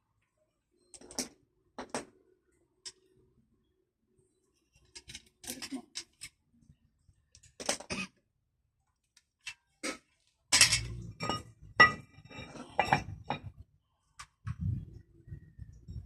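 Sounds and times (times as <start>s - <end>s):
metallic knocks and clinks: 10.5s - 13.6s.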